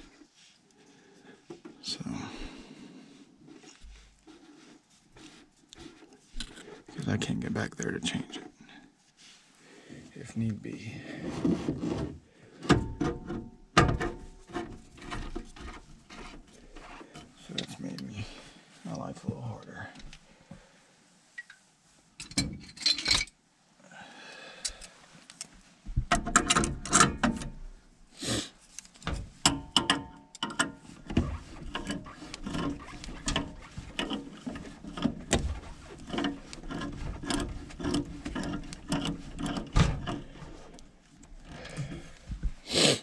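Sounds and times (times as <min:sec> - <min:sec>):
tools clicking and scraping on fittings: 0:26.1 - 0:27.5, 0:28.7 - 0:41.8.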